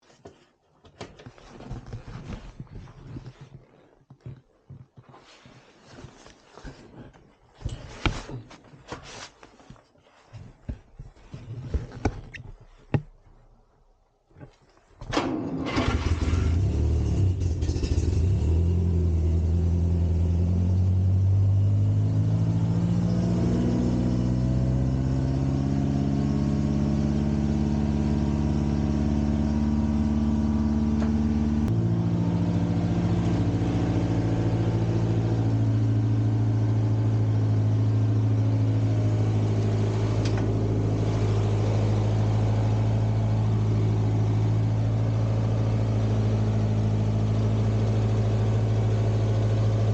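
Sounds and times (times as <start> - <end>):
tractor engine running: 15.1 - 18.0, 24.4 - 49.9.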